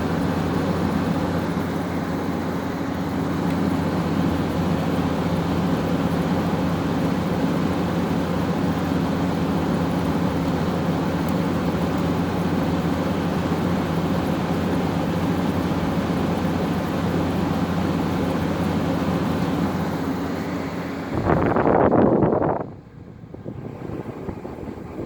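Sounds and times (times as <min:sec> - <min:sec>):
air conditioner running: 0:00.0 - 0:25.0.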